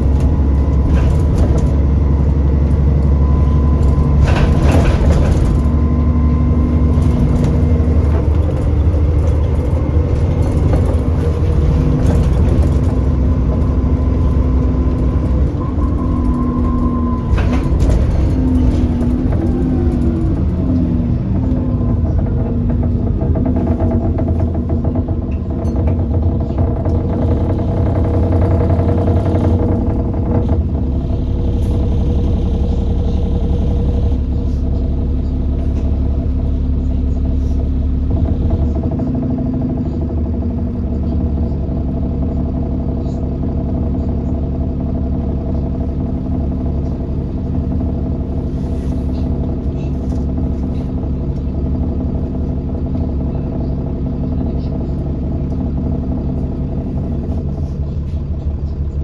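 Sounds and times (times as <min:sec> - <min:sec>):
bus engine running: 0:00.0 - 0:59.0.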